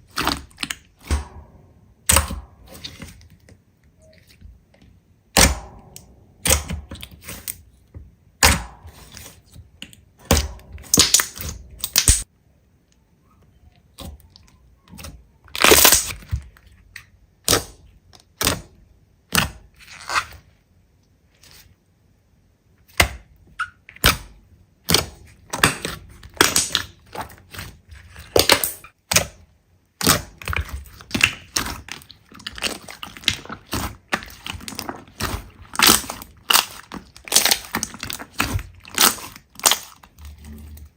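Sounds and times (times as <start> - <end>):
slime crunching and popping: 8.4 - 12.3, 15.5 - 16.3, 24.9 - 29.2, 30.0 - 40.7.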